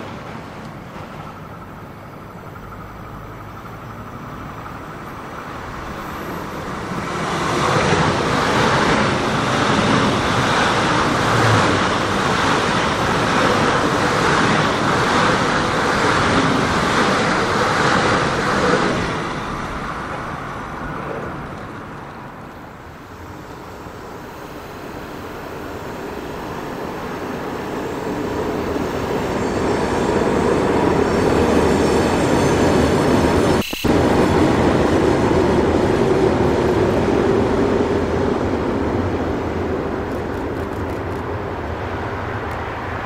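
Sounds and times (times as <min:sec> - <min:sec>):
high-speed train passing: 0:00.0 - 0:43.0
train wheels on rails: 0:00.0 - 0:43.0.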